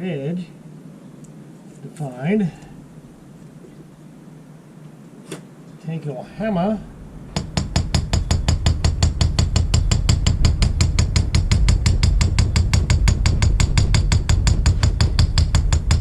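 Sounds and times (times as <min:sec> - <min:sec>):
hammer tapping on metal: 0:07.3 - 0:16.0.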